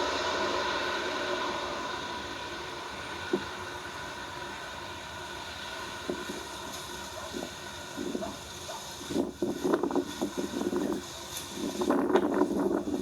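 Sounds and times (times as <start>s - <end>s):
radio static hiss: 5.7s - 13.0s.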